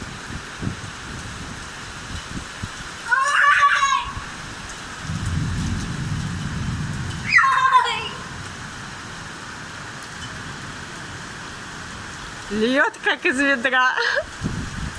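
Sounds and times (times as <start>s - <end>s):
thunder rumble: 0.0s - 9.3s, 14.3s - 14.9s
heavy rain pouring: 0.0s - 14.9s
child exclaiming: 3.0s - 4.4s, 7.3s - 8.4s.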